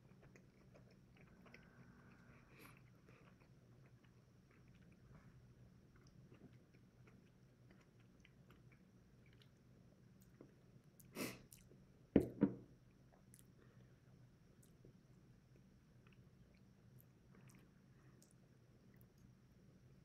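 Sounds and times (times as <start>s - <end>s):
quiet chewing with mouth clicks: 0.0s - 11.9s, 12.9s - 19.6s
glass bottle set on wooden table: 12.2s - 12.6s.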